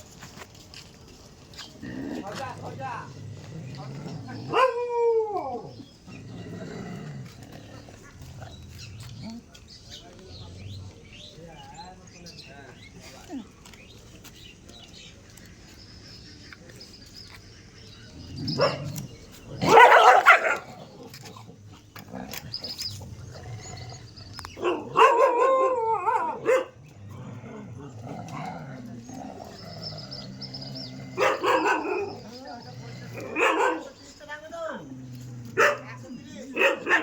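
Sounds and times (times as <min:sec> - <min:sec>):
dog barking: 0:04.4 - 0:04.9, 0:18.5 - 0:19.0, 0:19.6 - 0:20.8, 0:24.6 - 0:26.8, 0:31.2 - 0:32.2, 0:33.2 - 0:34.0, 0:35.6 - 0:37.0.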